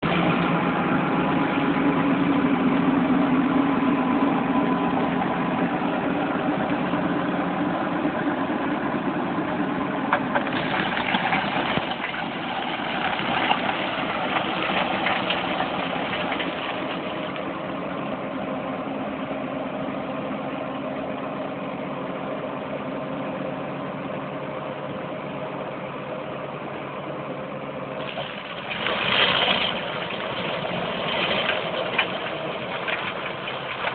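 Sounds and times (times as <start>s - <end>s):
diesel engine running: 0.0s - 33.9s
crackles: 28.0s - 33.9s.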